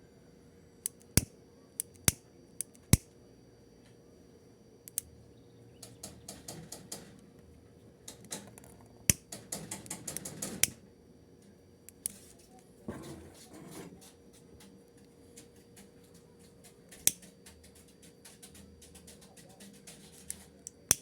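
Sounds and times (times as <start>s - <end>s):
objects clicking on a bench: 5.8s - 7.3s, 8.1s - 10.8s, 12.0s - 21.0s.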